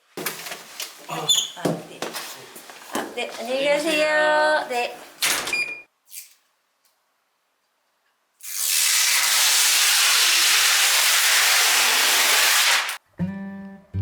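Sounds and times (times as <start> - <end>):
loud steady hiss: 8.8 - 13.0.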